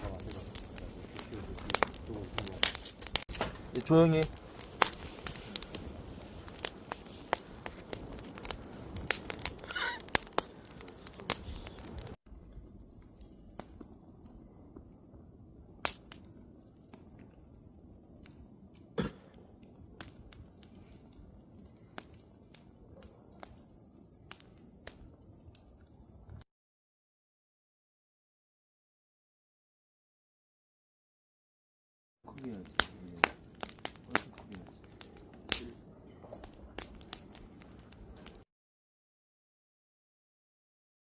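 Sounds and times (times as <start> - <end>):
wood fire crackling and popping: 0.0 - 26.4, 32.3 - 38.5.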